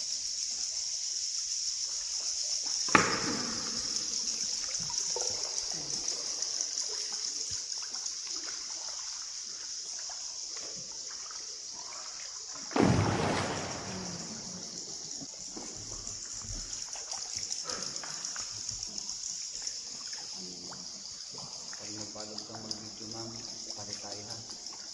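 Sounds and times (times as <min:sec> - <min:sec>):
water trickling and splashing: 0:00.0 - 0:24.9
sharp ringing splash: 0:12.7 - 0:14.8
rushing splash: 0:12.7 - 0:15.0.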